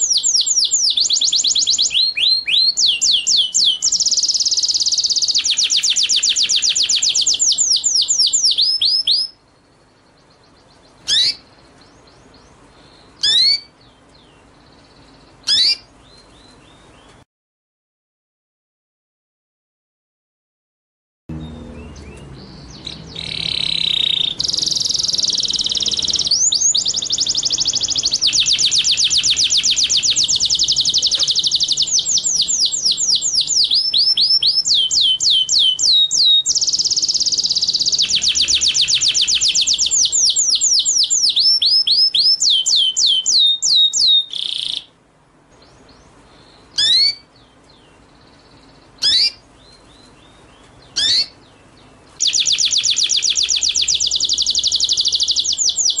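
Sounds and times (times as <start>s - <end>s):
songbird singing rapid trills: 0.0s - 17.2s, 21.3s - 56.0s
short high bird calls: 11.0s - 11.5s, 13.2s - 13.7s, 15.4s - 15.9s, 22.8s - 44.9s, 46.5s - 47.3s, 49.0s - 49.4s, 50.9s - 51.4s.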